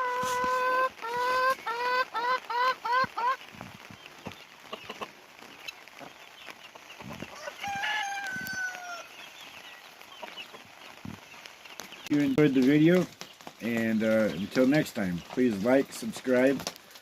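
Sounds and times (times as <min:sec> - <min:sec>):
chickens clucking: 0:00.0 - 0:16.8
rooster crowing: 0:07.4 - 0:09.1.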